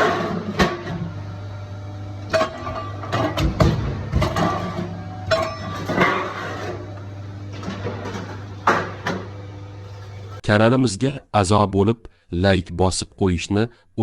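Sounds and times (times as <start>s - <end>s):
factory machinery humming: 0.0s - 10.4s
sheet metal clanking: 2.3s - 6.8s.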